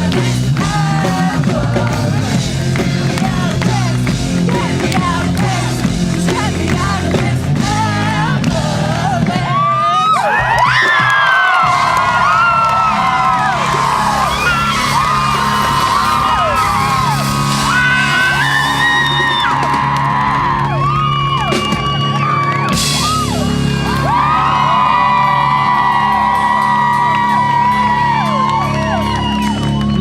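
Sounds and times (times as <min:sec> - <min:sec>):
bass notes: 0:00.0 - 0:30.0
live band music: 0:00.0 - 0:30.0
crowd whooping and yelling: 0:07.9 - 0:30.0.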